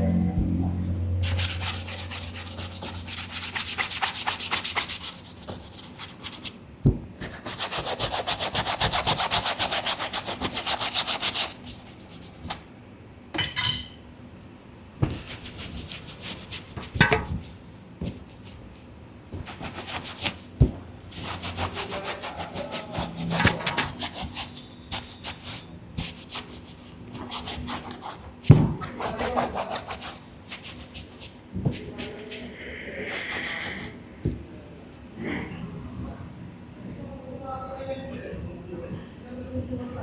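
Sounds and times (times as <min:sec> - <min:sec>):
brush scrubbing a sneaker: 0:01.2 - 0:06.6, 0:07.2 - 0:12.5, 0:15.1 - 0:17.0, 0:19.3 - 0:32.5.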